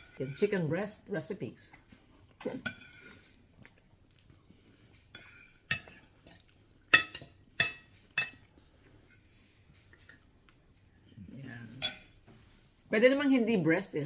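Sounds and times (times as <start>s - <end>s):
cutlery clinking on a plate: 2.6s - 3.2s, 5.2s - 8.4s.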